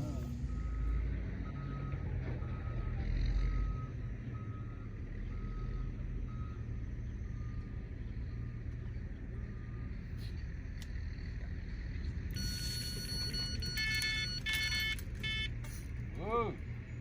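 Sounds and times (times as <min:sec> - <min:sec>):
reversing alarm beeping: 0:00.0 - 0:09.9, 0:12.3 - 0:15.8
engine rumbling: 0:00.0 - 0:17.0.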